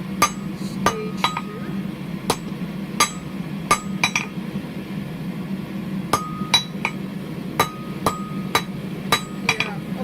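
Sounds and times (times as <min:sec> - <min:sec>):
low hum: 0:00.0 - 0:10.0
hammer striking steel on anvil: 0:00.2 - 0:01.6, 0:02.3 - 0:04.4, 0:06.1 - 0:07.0, 0:07.6 - 0:09.8.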